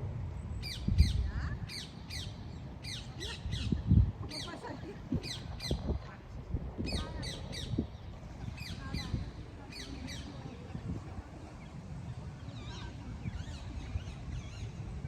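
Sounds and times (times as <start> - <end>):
steady low rumble: 0.0 - 15.0
birds calling: 0.6 - 6.0.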